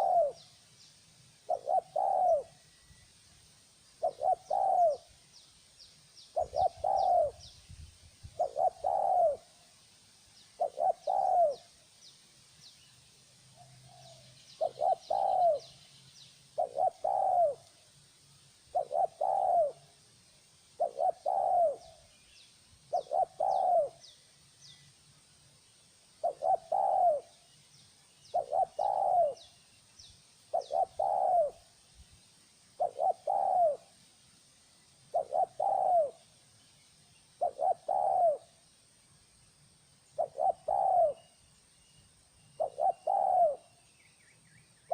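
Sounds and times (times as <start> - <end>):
dove cooing: 0.0 - 0.5, 1.4 - 2.7, 4.0 - 5.1, 6.4 - 7.5, 8.4 - 9.6, 10.6 - 11.7, 13.6 - 15.8, 16.6 - 17.7, 18.7 - 19.9, 20.8 - 22.0, 22.9 - 24.1, 26.2 - 27.3, 28.3 - 29.5, 30.5 - 31.7, 32.8 - 33.9, 35.1 - 36.2, 37.4 - 38.6, 40.2 - 41.3, 42.6 - 43.7
small birds chirping: 0.0 - 3.2, 3.9 - 34.0, 34.7 - 44.9.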